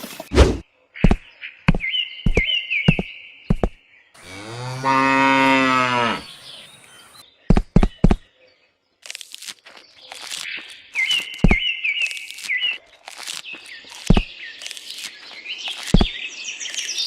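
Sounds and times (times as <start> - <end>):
cow mooing: 4.2 - 6.4.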